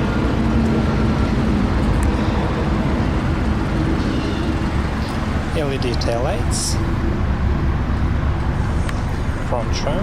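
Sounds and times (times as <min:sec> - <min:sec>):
low engine rumble: 0:00.0 - 0:10.0.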